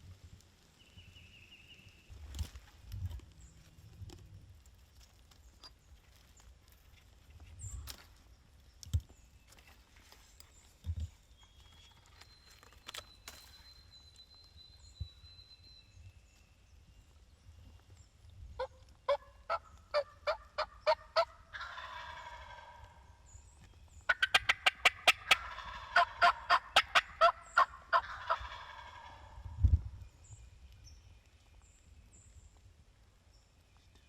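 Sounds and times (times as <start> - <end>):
turkey gobble: 18.6 - 23.0, 24.1 - 29.4
turkey rattling calls: 18.6 - 23.0, 24.1 - 29.4
turkeys clucking and yelping: 18.6 - 23.4, 24.0 - 29.5.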